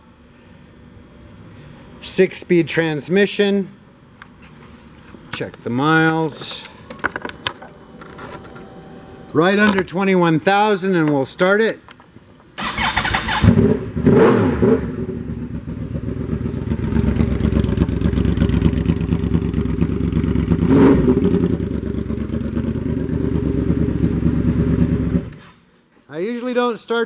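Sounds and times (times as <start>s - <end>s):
motorcycle engine revving and idling: 12.7s - 25.4s.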